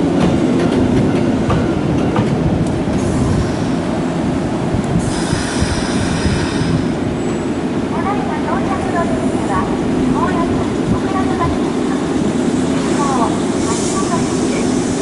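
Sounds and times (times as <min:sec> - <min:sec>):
train brake squeal: 0:05.0 - 0:07.4.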